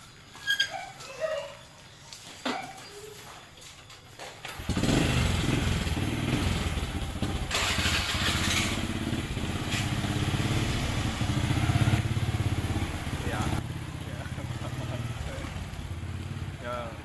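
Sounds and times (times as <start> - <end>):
small engine running: 4.5 - 17.0.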